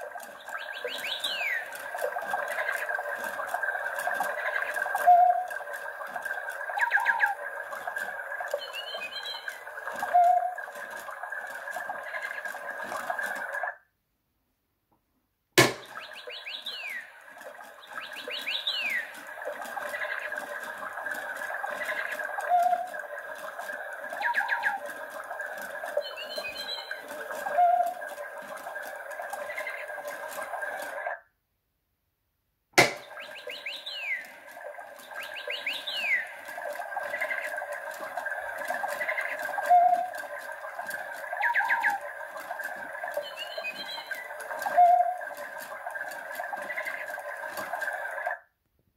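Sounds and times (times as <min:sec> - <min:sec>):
toy click: 0:00.0 - 0:13.6, 0:15.6 - 0:31.0
toy parrot chirping: 0:00.3 - 0:03.0, 0:03.8 - 0:05.8, 0:06.6 - 0:07.4, 0:08.5 - 0:11.1, 0:15.8 - 0:17.2, 0:17.8 - 0:20.4, 0:21.6 - 0:23.1, 0:24.1 - 0:28.2, 0:32.9 - 0:42.3, 0:43.1 - 0:45.5
sharp click: 0:15.6 - 0:16.0, 0:32.8 - 0:33.2
steady background noise: 0:15.6 - 0:31.2.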